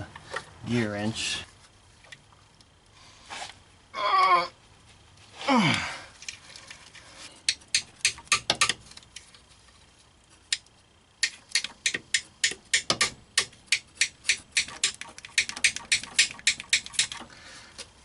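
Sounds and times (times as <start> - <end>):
ratchet wrench clicking: 10.5 - 17.3.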